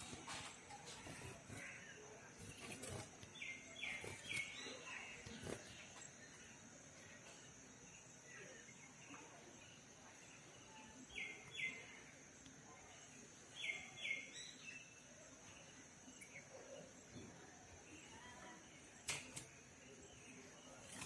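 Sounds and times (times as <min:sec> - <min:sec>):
bird chirps: 0:00.4 - 0:06.6.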